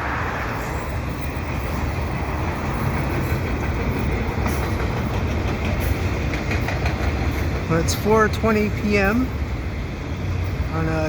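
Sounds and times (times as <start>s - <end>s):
freight train wheels rumbling on rail: 0.0s - 11.0s.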